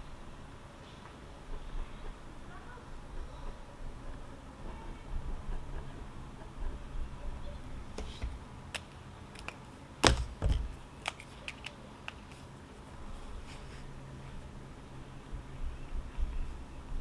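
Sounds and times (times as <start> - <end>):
loud knocks: 10.0 - 10.8.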